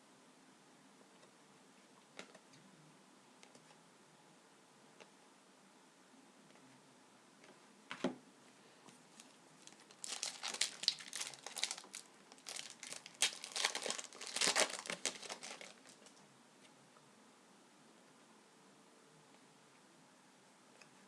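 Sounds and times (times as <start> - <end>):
wrapper crinkling and tearing: 9.2 - 16.1.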